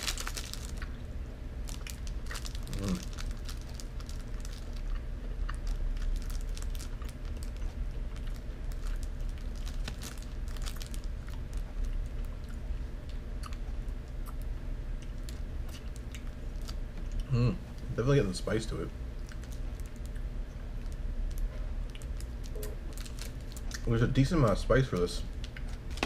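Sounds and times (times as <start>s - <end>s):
person chewing candy: 0.0s - 1.0s, 1.6s - 17.9s, 19.2s - 23.9s
plastic wrapper crinkling: 0.0s - 1.0s, 1.6s - 4.9s, 5.5s - 12.0s, 20.8s - 23.9s.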